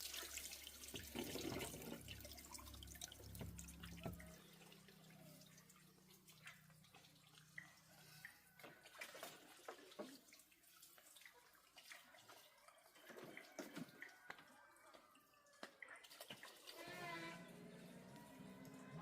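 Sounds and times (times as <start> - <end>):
faint water drips: 0.0 - 19.0.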